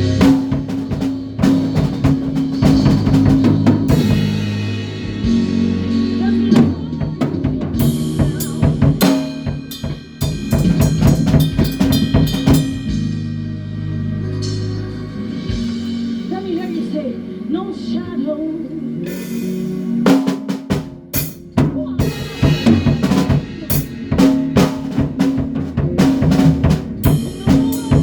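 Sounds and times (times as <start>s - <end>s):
drum kit hitting hard: 0.0s - 13.5s, 19.1s - 28.0s
held low bass notes: 0.0s - 20.1s
band playing: 0.0s - 28.0s.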